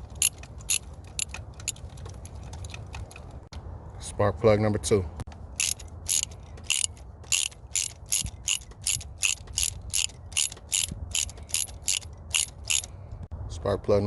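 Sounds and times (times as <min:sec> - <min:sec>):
hand ratchet clicking: 0:00.0 - 0:03.3, 0:05.6 - 0:12.9.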